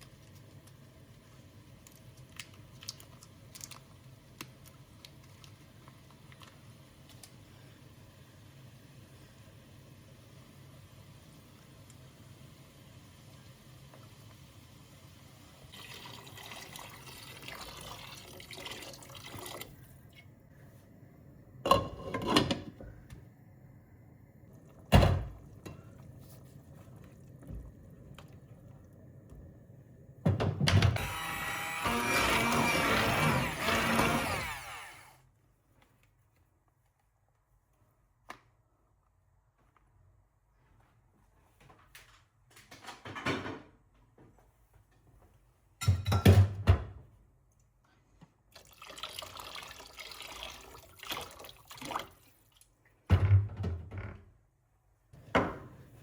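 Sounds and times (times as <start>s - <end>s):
water running: 15.6s - 19.8s, 48.5s - 52.8s.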